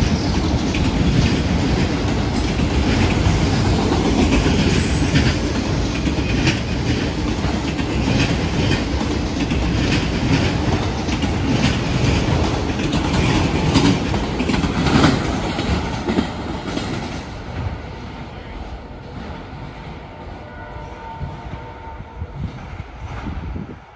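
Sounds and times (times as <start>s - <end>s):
wheels clacking over rail joints: 0.0s - 17.8s
freight train rumbling past: 0.0s - 23.9s.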